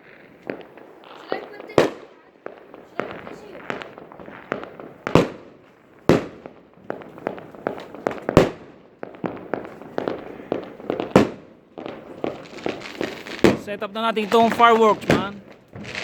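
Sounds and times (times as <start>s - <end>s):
fireworks bangs and crackling pops: 0.0s - 16.0s.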